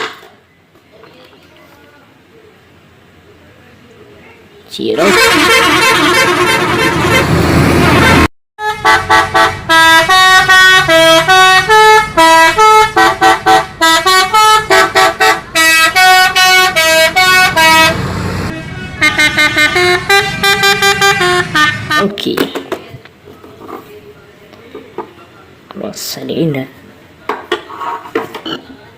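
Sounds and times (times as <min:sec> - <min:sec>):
loud noisy sound: 0:05.0 - 0:08.3
multi-tone vehicle horn tune: 0:05.0 - 0:22.2.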